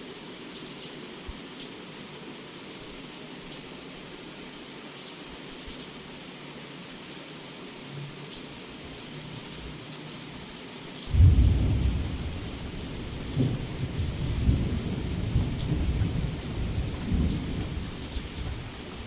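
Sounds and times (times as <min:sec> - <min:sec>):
heavy rain: 0:00.0 - 0:19.0
thunder crack and rumble: 0:11.1 - 0:19.0.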